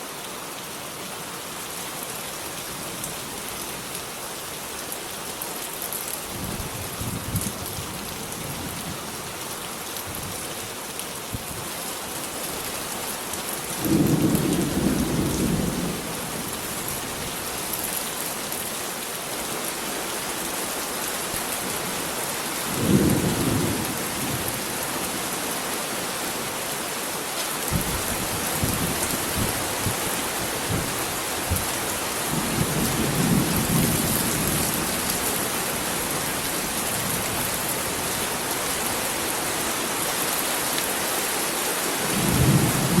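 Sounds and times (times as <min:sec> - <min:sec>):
heavy rain: 0:00.0 - 0:43.0
thunder rumbling: 0:13.8 - 0:16.5.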